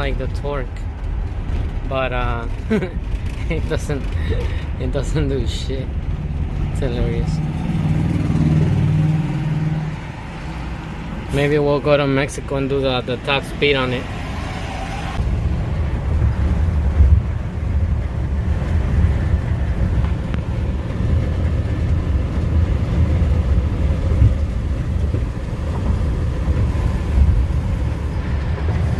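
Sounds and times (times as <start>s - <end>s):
truck engine and road noise: 0.0s - 28.9s.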